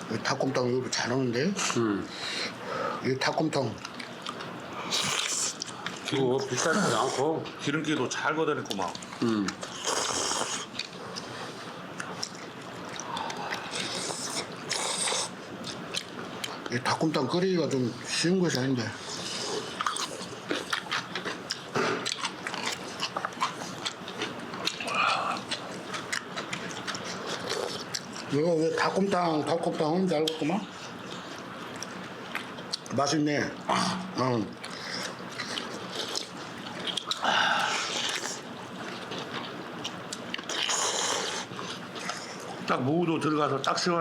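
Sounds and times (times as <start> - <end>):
person chewing food: 3.8 - 7.2, 8.7 - 16.7, 18.5 - 28.3, 30.2 - 32.9, 34.6 - 42.7.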